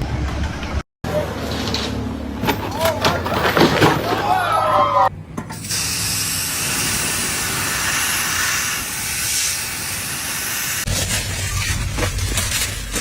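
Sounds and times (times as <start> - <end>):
strong steady hiss: 5.6 - 10.9.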